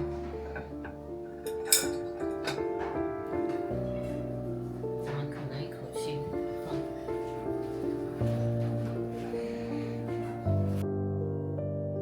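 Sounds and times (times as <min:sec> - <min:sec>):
tableware clink: 0:00.0 - 0:04.4
piano music: 0:00.0 - 0:12.0.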